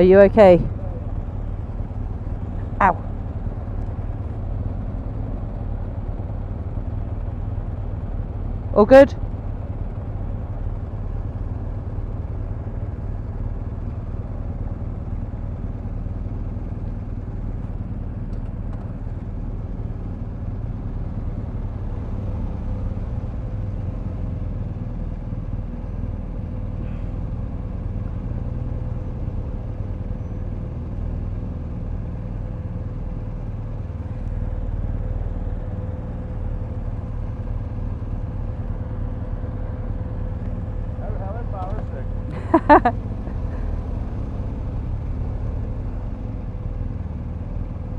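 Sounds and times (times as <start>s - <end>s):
motorcycle engine idling: 0.0s - 44.1s
other vehicles idling: 0.0s - 47.9s.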